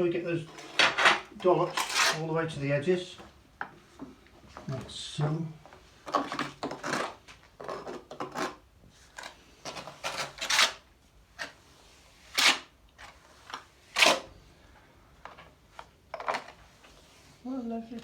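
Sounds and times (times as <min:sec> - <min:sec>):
trowel scraping adhesive on cement: 0:00.5 - 0:02.3.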